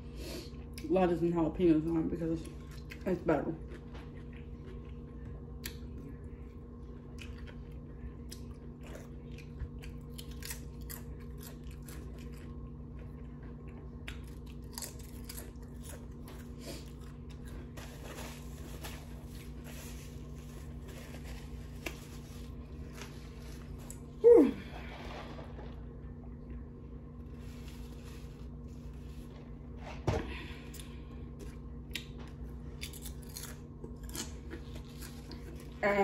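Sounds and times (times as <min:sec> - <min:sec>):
chewing potato chips: 0:01.8 - 0:24.2, 0:30.7 - 0:36.0
low hum: 0:02.4 - 0:36.0.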